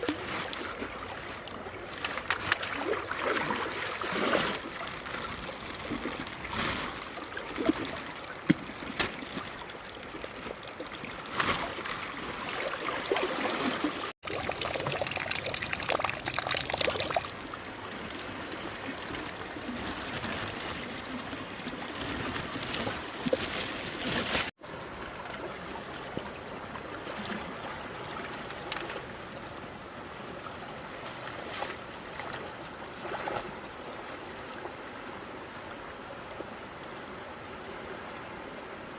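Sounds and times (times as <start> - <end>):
water splashes: 0.0 - 29.4, 30.4 - 34.9
water trickling: 0.1 - 19.5.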